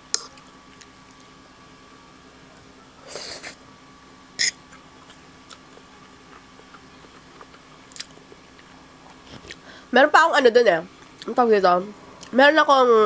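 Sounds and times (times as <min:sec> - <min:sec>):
person chewing noodles: 0:04.7 - 0:09.7.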